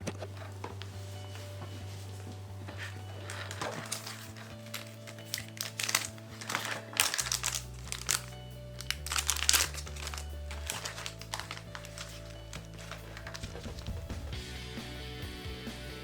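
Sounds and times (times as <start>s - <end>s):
background music with bass line: 0.0s - 16.0s
packaging crinkling and rustling: 1.8s - 14.3s.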